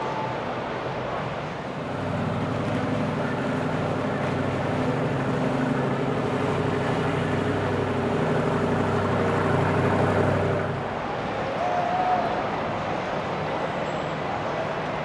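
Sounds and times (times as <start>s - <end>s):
boat engine humming: 1.7s - 11.3s.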